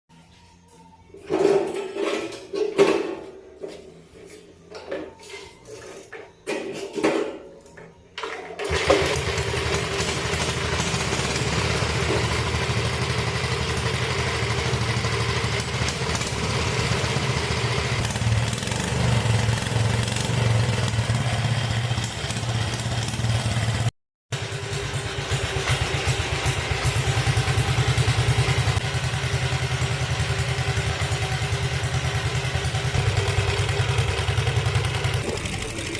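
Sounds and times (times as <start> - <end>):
motorcycle engine running: 8.7 - 35.9.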